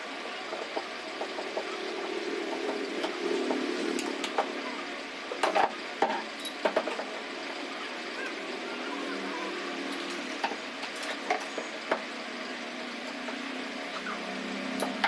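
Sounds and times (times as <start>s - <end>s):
table fan motor humming: 0.0s - 15.0s.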